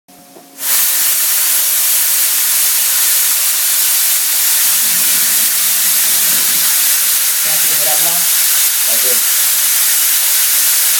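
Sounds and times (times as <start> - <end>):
coolant spraying hiss: 0.6 - 10.9.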